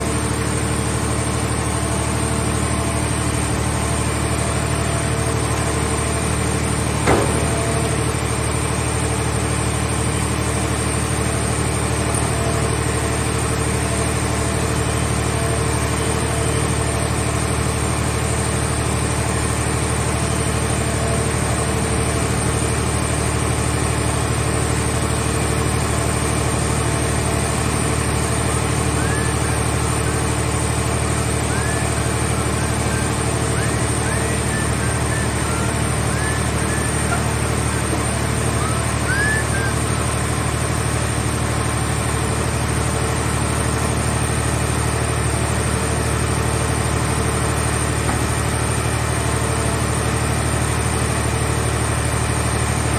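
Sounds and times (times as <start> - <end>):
engine drone: 0.0 - 52.9
sharp knock: 7.1 - 7.9.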